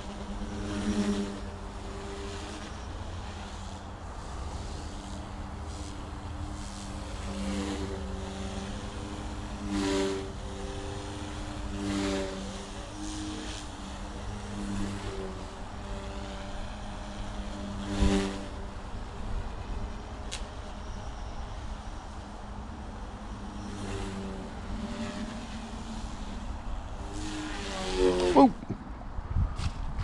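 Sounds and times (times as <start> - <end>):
rc helicopter rotors humming: 0.0 - 30.0.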